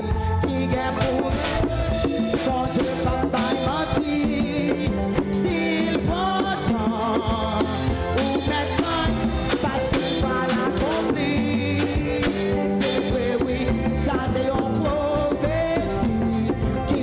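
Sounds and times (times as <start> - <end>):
drum kit beat: 0.0 - 17.0
worship band music: 0.0 - 17.0.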